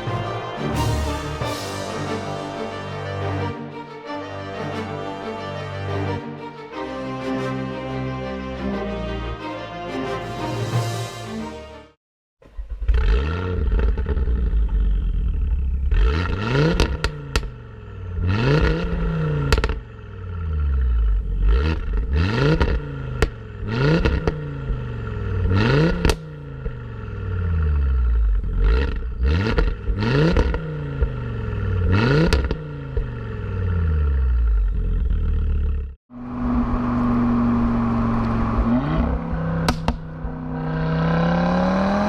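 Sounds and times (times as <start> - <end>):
car engine revving hard: 12.9 - 15.2, 15.8 - 34.4, 36.2 - 42.0.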